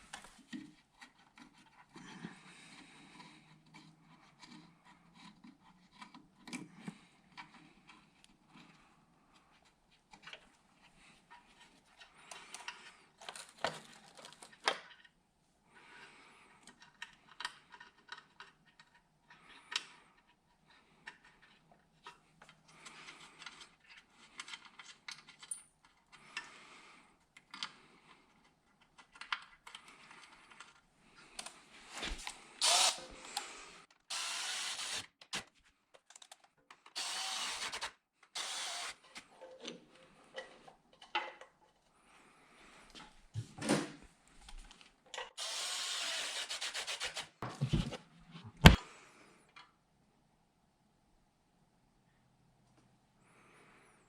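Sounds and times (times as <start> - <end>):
handheld power drill running: 32.6 - 35.1, 37.0 - 39.1, 45.4 - 47.2.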